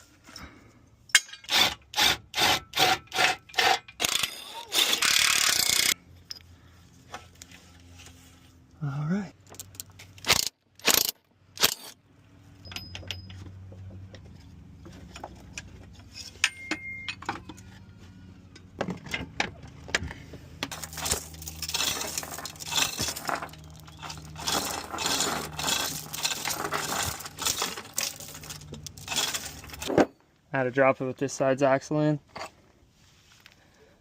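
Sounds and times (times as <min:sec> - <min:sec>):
metal tools and bolts clinking: 0:00.2 - 0:01.8, 0:03.2 - 0:06.5, 0:09.5 - 0:13.8, 0:15.1 - 0:17.6, 0:20.7 - 0:30.3.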